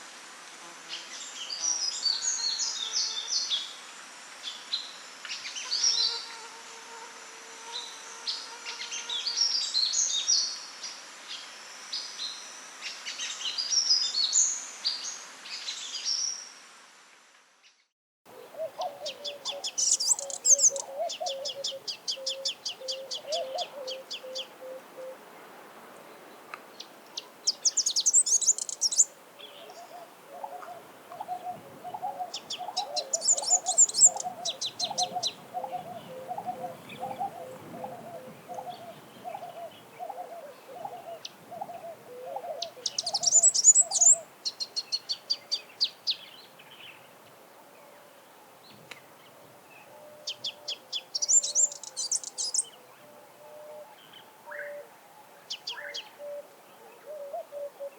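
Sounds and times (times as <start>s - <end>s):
bird high twittering trills: 18.8s - 24.8s, 27.4s - 29.1s, 32.3s - 37.4s, 42.6s - 45.1s, 50.3s - 52.7s.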